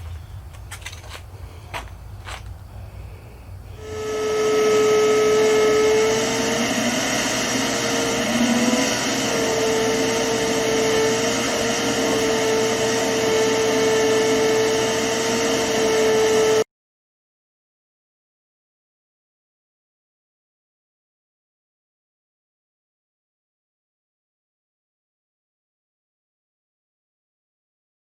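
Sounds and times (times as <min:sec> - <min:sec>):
rushing air noise: 0:01.3 - 0:15.8
machine whine: 0:03.7 - 0:16.7.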